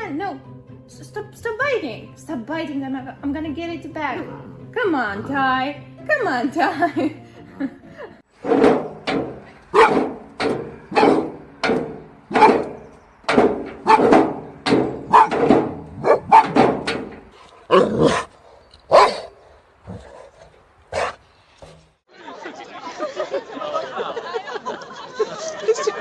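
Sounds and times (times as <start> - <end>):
dog barking: 9.7 - 10.1, 10.9 - 11.4, 12.3 - 12.7, 13.8 - 14.2, 15.0 - 15.4, 16.0 - 16.6, 18.9 - 19.3, 20.9 - 21.2.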